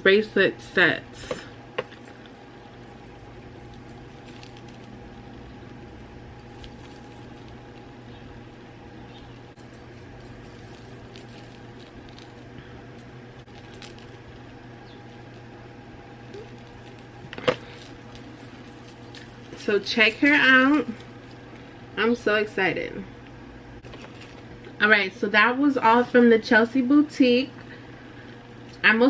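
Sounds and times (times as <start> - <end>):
low background hum: 0.0 - 29.0
bracelets clinking: 0.7 - 5.0, 5.8 - 7.9, 9.0 - 15.5, 16.2 - 21.4.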